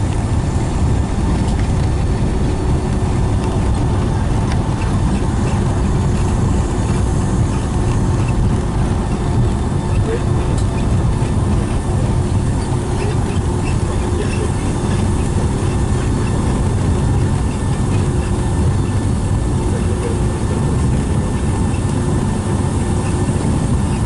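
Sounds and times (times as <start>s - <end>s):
aircraft cabin rumble: 0.0s - 24.0s.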